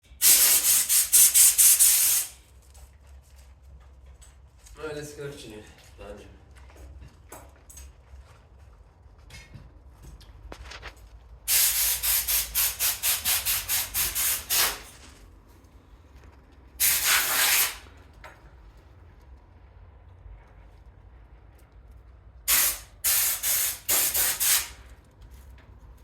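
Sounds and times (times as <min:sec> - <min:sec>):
short hissing sprays: 0:00.1 - 0:02.4, 0:11.5 - 0:15.1, 0:16.8 - 0:17.9, 0:22.5 - 0:24.9.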